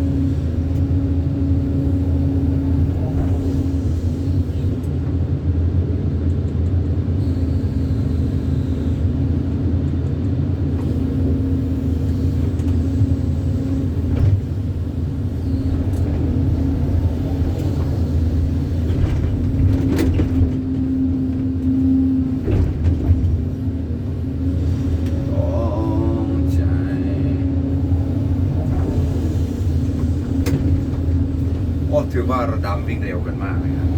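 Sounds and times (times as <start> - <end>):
excavator diesel engine drone: 0.0 - 33.9
steady hum: 21.8 - 33.9.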